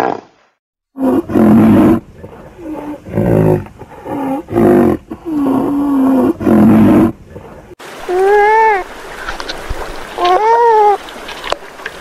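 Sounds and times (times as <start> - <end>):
rhinoceros moaning calls: 1.0 - 7.6.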